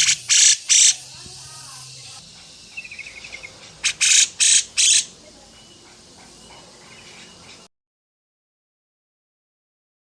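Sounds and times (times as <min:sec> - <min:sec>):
songbird trilling: 0:00.0 - 0:07.6
harsh rasping bird calls: 0:00.0 - 0:07.7.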